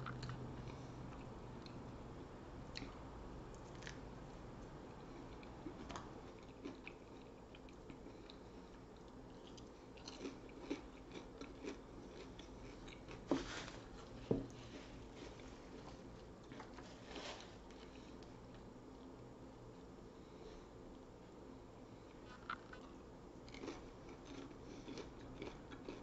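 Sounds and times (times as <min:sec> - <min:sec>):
chewing mouth sounds: 0:22.2 - 0:26.0.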